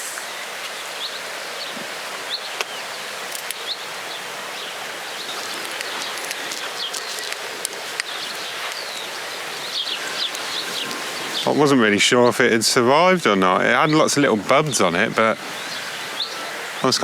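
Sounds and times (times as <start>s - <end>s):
bird chirps: 0.0s - 11.6s, 15.4s - 17.0s
breeze rustling leaves: 0.0s - 17.0s
faint clicks: 2.6s - 3.7s, 5.3s - 11.0s.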